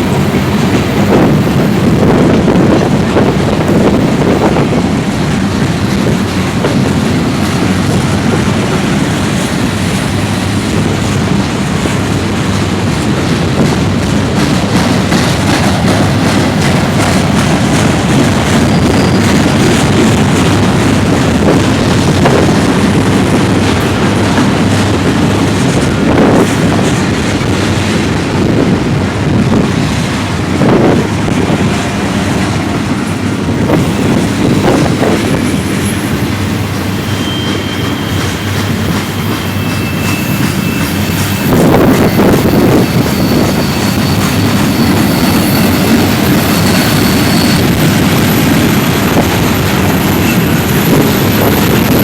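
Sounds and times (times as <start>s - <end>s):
freight train wheels clattering: 0.0s - 52.0s
high wheel squeal: 18.6s - 19.5s, 33.8s - 48.7s, 49.8s - 52.0s.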